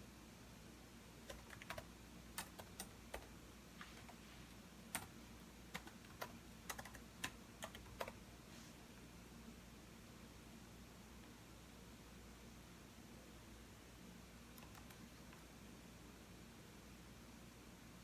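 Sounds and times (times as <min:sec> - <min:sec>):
typing on computer keyboard: 0:01.2 - 0:03.3, 0:04.9 - 0:05.1, 0:05.7 - 0:08.2, 0:14.6 - 0:15.4.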